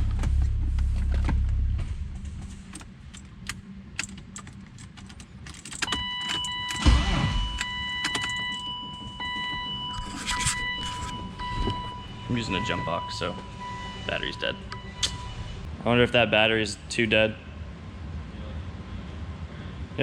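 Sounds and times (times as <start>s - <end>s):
loud thud: 0.0s - 2.5s
steady electronic tone: 0.0s - 2.7s, 9.7s - 15.7s.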